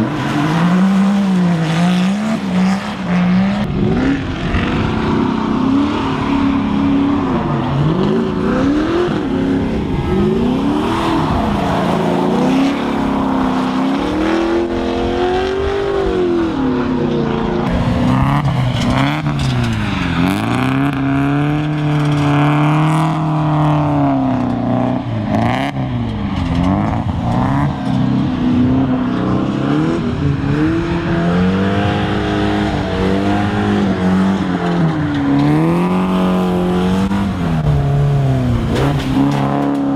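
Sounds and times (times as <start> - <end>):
car engines revving hard: 0.0 - 39.9
tyre and track noise: 17.6 - 39.9.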